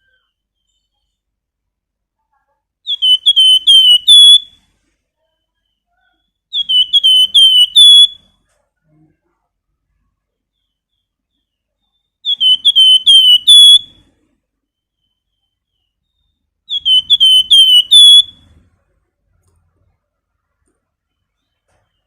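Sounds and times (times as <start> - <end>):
bird whistling song: 2.8 - 4.6, 5.4 - 8.4, 10.5 - 14.1, 14.8 - 18.6.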